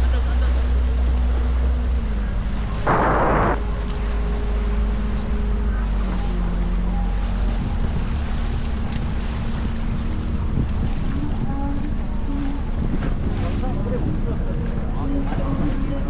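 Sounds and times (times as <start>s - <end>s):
motorboat engine drone: 0.0s - 16.0s
short rush of noise: 2.9s - 3.6s
wind buffeting microphone: 8.8s - 16.0s.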